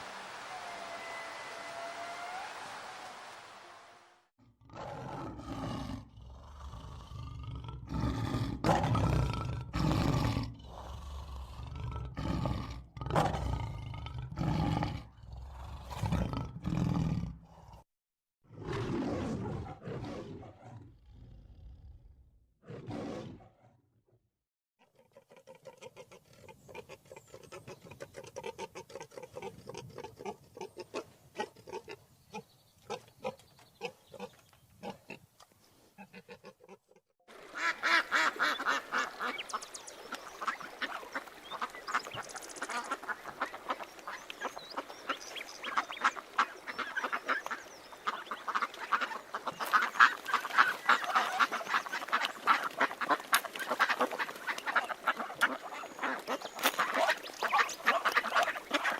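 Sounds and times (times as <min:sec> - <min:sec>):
ducks quacking: 0:37.4 - 0:58.9
chorus of many birds calling: 0:37.6 - 0:58.9.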